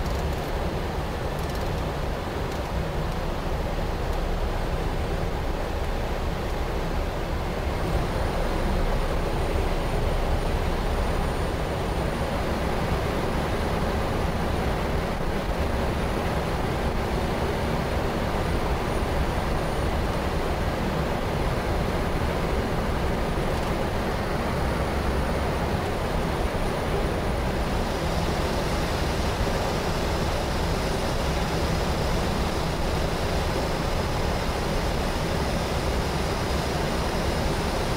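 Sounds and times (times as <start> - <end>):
airflow rush and engine hum: 0.0 - 37.9.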